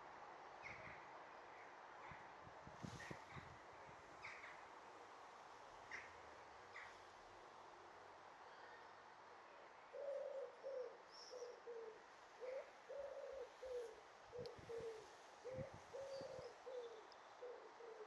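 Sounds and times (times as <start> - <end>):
pigeon cooing: 10.0 - 18.0.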